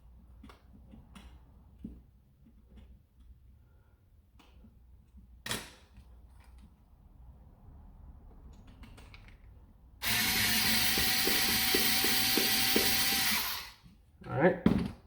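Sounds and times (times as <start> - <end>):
power driver motor spinning: 10.0 - 13.8.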